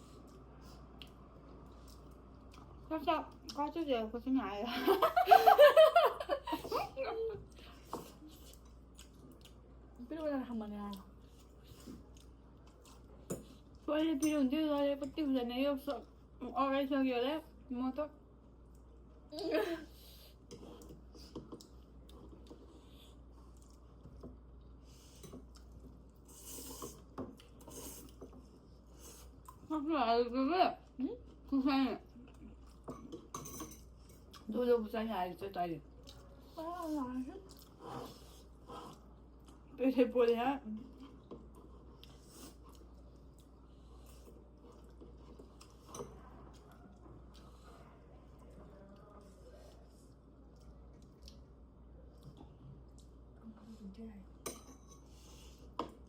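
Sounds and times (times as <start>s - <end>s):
chewing: 0.2s - 3.6s, 7.5s - 9.7s, 10.9s - 13.9s, 20.2s - 29.7s, 32.1s - 34.5s, 35.8s - 39.7s, 40.8s - 53.4s.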